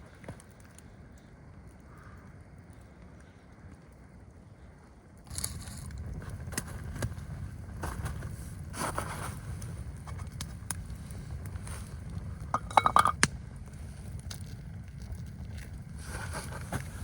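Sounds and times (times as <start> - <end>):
steady low rumble: 0.8 - 17.0
sharp clinks and knocks: 12.6 - 13.2.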